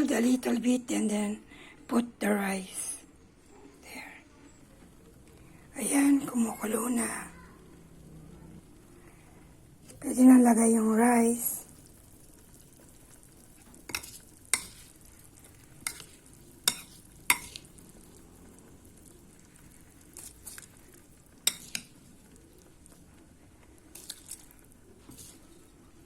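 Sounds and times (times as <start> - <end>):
faint steady hiss: 0.0 - 26.0
spoon scraping a cooking pot: 13.8 - 15.1, 15.7 - 17.8, 21.4 - 22.0, 23.9 - 25.7.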